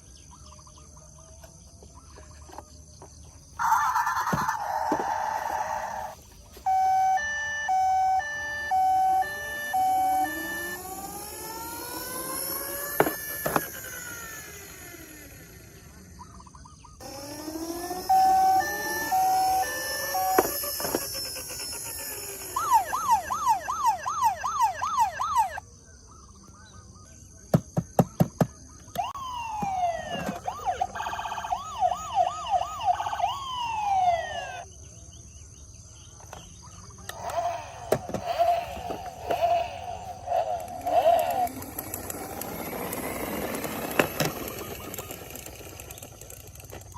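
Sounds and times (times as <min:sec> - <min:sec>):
electronic toy sirens: 0:03.6 - 0:16.0, 0:17.0 - 0:25.6, 0:28.8 - 0:34.7, 0:37.0 - 0:46.9
toy clicks: 0:06.7 - 0:16.0, 0:17.0 - 0:25.6, 0:37.0 - 0:46.9.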